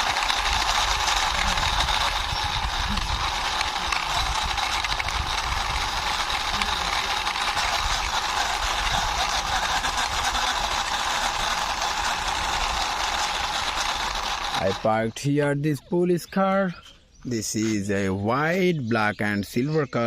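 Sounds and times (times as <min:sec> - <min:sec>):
toy car wheels rolling and rattling: 0:00.0 - 0:15.0.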